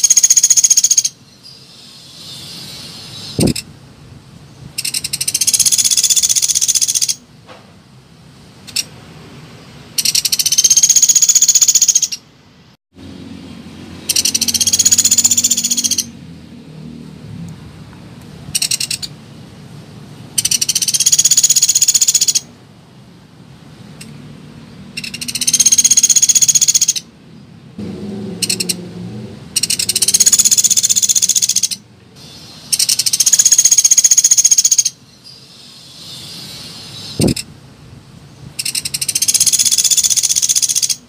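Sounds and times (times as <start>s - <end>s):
woodpecker rattling calls: 0.0s - 3.7s, 4.8s - 7.2s, 10.0s - 12.2s, 14.0s - 16.2s, 18.5s - 19.2s, 20.4s - 22.5s, 24.9s - 27.1s, 28.4s - 28.8s, 29.6s - 37.5s, 38.6s - 41.0s.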